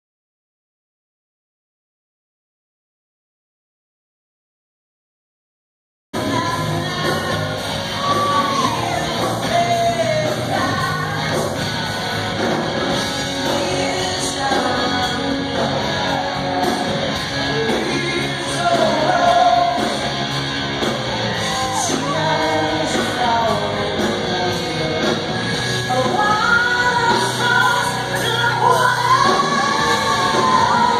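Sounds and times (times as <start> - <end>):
woman singing: 6.2 - 11.4, 13.4 - 16.6, 25.9 - 30.9
live rock band music: 6.2 - 30.9.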